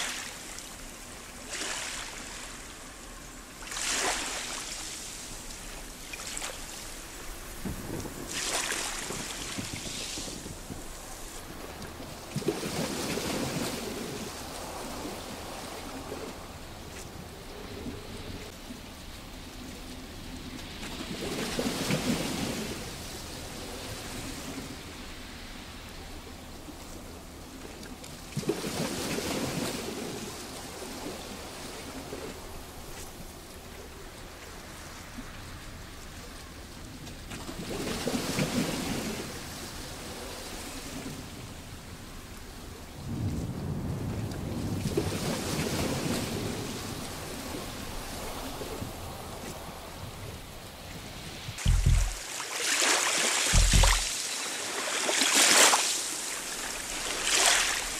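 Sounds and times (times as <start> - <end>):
water washing over stones: 0.0 - 15.6, 51.5 - 57.9
waves washing over rocks: 0.0 - 42.6, 43.6 - 57.9
wave breaking in sharp splash: 3.7 - 5.2, 8.3 - 10.6, 51.6 - 57.9
hiss of water: 45.4 - 57.9.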